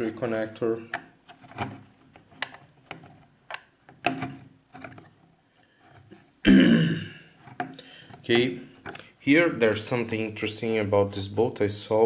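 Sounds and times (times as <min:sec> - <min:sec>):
plastic boat hull clicks and knocks: 0:02.4 - 0:05.0.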